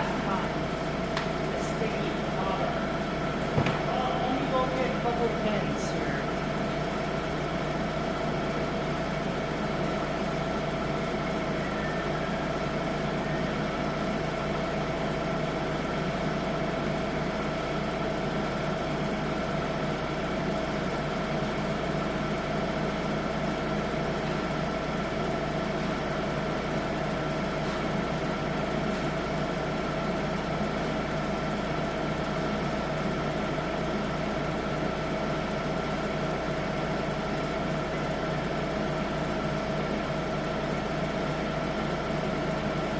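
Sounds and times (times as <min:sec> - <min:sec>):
tractor engine idling: 0:00.0 - 0:42.9.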